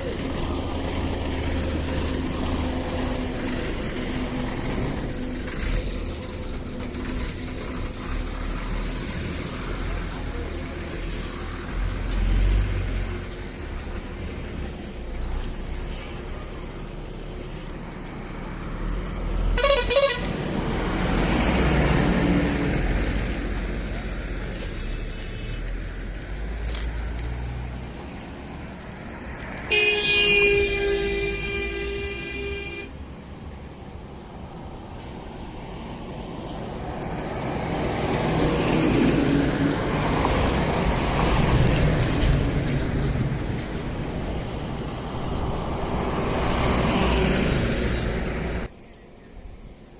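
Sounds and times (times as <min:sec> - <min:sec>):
vehicle passing by: 0:00.0 - 0:48.7
highway traffic rumble: 0:00.0 - 0:49.9
vehicle horn honks: 0:19.6 - 0:20.4, 0:29.7 - 0:33.0.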